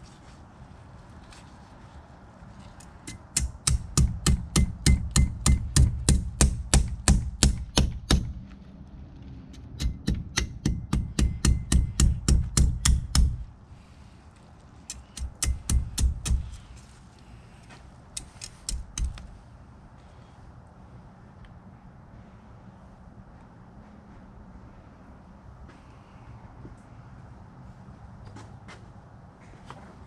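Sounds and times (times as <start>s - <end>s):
chopping blows on fish hide: 3.1s - 8.4s, 9.7s - 13.4s, 14.9s - 16.7s, 18.2s - 19.3s.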